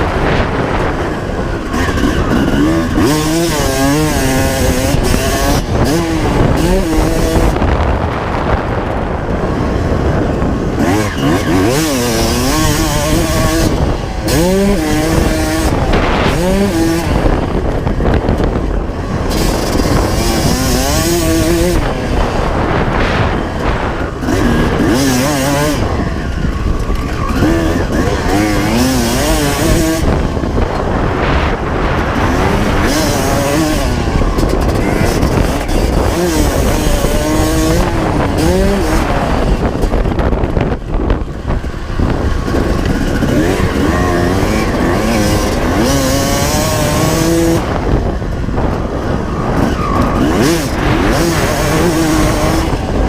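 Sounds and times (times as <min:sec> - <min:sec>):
two-stroke motorcycle engine revving: 0:00.0 - 0:53.0.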